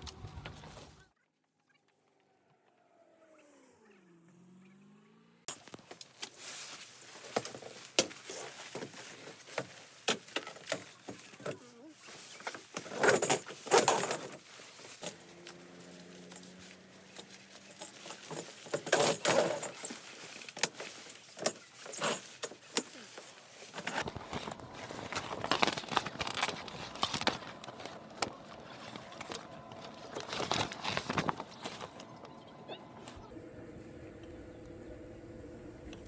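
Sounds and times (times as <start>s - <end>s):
objects clicking and rattling: 5.5s - 33.2s
rustling background: 5.5s - 33.3s.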